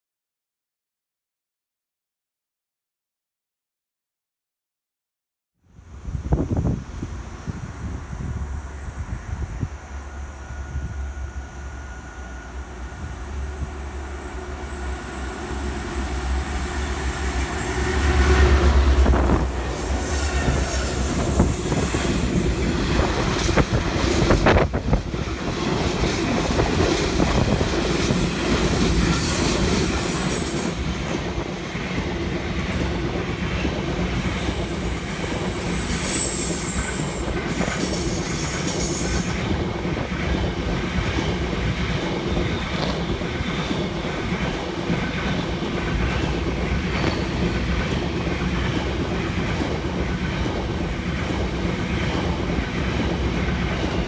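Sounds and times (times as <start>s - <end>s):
diesel locomotive rumble: 6.0s - 29.7s
high-pitched wheel squeal: 34.2s - 38.4s.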